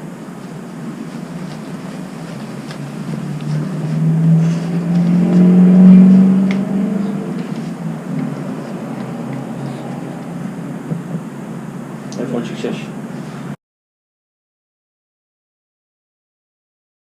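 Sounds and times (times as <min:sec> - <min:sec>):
vehicle engine passing by: 0:01.3 - 0:13.5.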